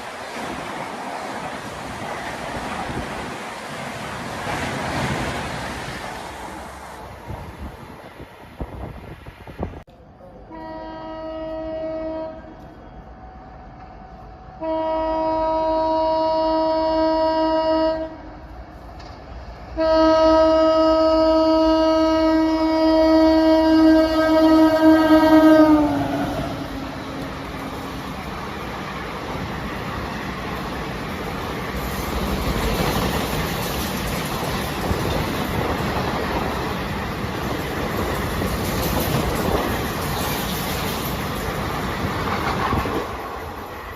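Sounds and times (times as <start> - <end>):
train passing: 0.0 - 43.9
wind noise on microphone: 7.1 - 9.9, 32.1 - 43.6
train horn blasts: 10.5 - 12.7, 14.6 - 18.5, 19.8 - 27.2.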